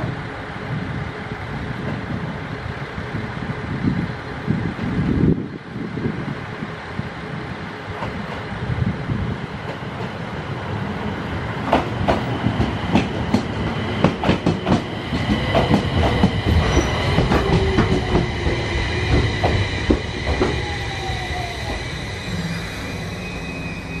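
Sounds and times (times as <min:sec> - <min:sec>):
train wheels rumbling: 0:00.0 - 0:24.0
train falling whine: 0:10.4 - 0:24.0
wheels clacking over rail joints: 0:11.6 - 0:20.6
high wheel squealing: 0:15.6 - 0:24.0.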